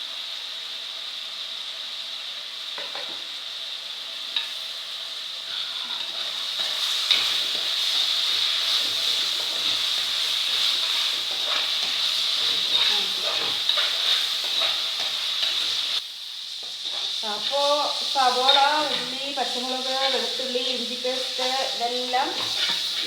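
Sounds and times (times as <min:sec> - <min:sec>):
onions sizzling in oil: 0:00.0 - 0:23.0.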